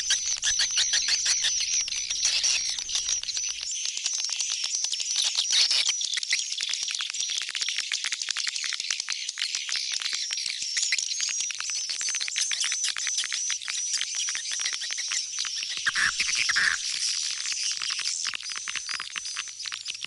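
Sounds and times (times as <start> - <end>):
swiftlets chirping and clicking: 0.0 - 3.7.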